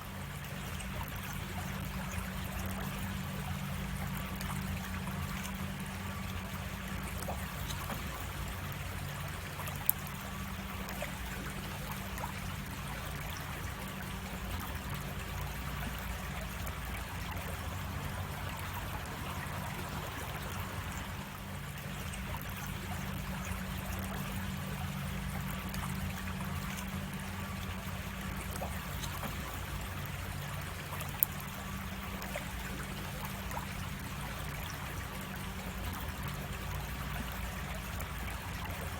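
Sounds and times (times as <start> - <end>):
creek water trickling over cascade: 0.0 - 38.9.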